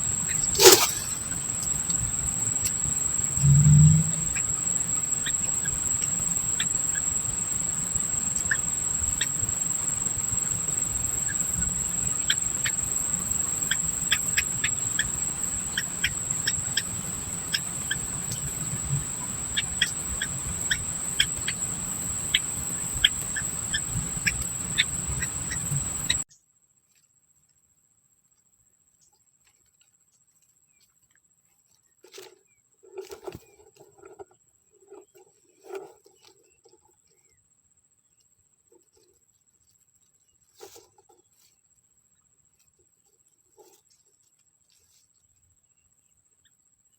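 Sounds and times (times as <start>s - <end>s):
high-pitched insect drone: 0.0s - 26.2s
small birds chirping: 0.0s - 26.2s.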